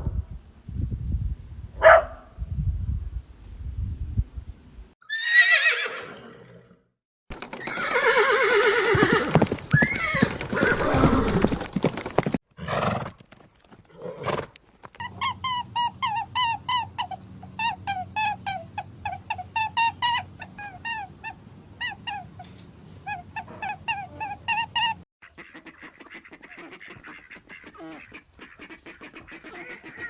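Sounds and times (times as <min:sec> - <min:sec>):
horse neighing: 0:05.0 - 0:06.8, 0:07.6 - 0:11.4.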